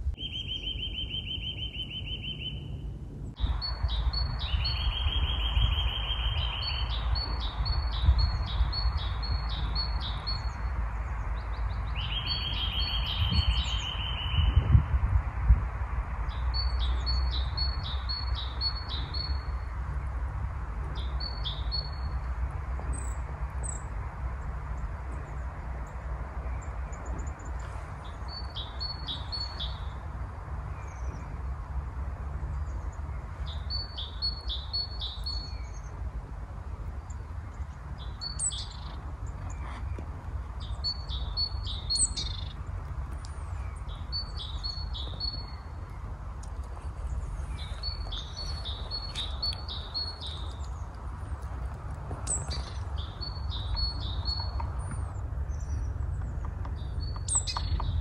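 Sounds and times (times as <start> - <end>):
songbird trill: 0.0 - 15.0, 16.2 - 58.0.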